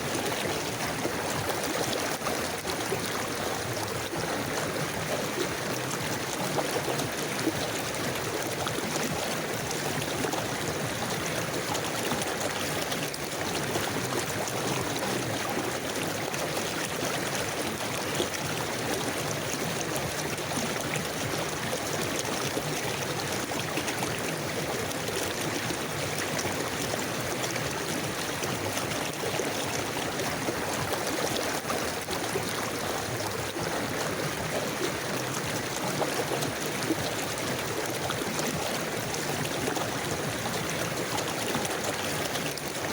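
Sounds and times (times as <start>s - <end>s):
river water flowing over stones: 0.0s - 42.9s.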